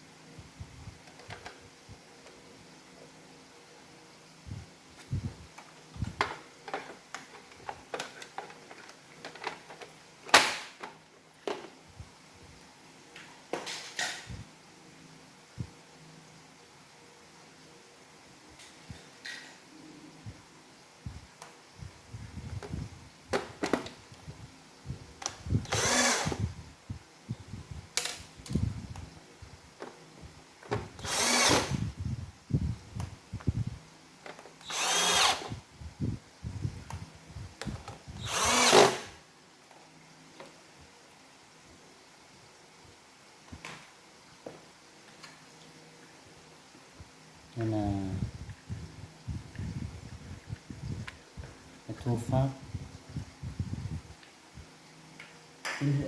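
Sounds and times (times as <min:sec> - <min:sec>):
electric screwdriver whirring: 0:25.6 - 0:26.5, 0:31.0 - 0:31.9, 0:34.6 - 0:35.6, 0:38.2 - 0:39.2.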